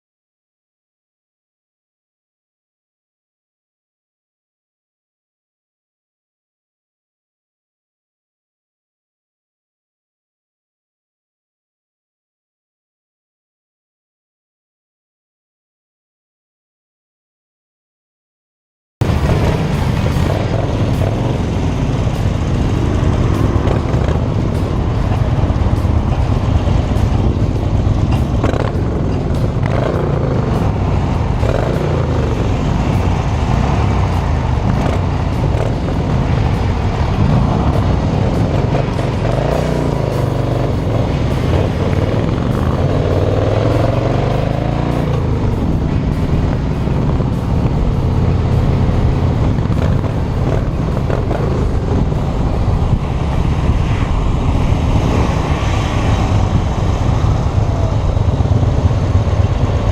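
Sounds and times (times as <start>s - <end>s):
motorcycle engine revving: 19.0s - 59.9s.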